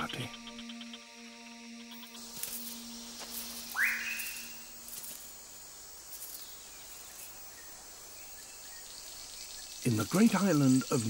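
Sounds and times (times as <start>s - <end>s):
low steady note: 0.0s - 5.5s
forest insect hiss: 0.0s - 11.0s
bird whistled call: 3.7s - 4.7s.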